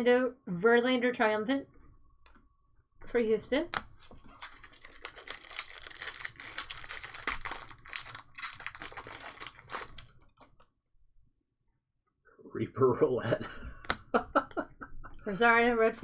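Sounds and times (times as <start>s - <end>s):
wrappers tearing and crinkling: 3.9s - 10.6s.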